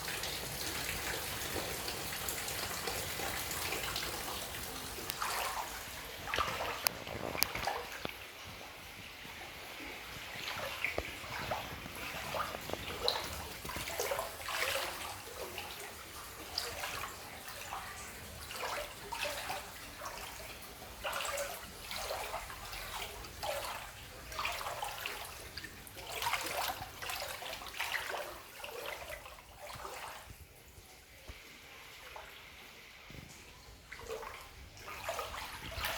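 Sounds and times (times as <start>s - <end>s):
floodwater splashing: 0.0s - 32.4s, 33.1s - 35.9s.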